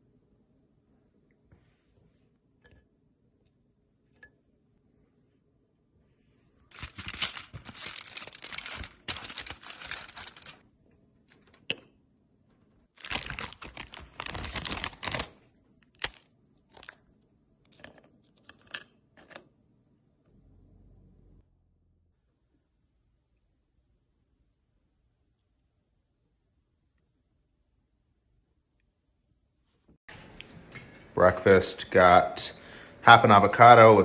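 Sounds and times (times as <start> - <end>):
crisp food crunching: 6.7 - 10.6, 13.0 - 17.1.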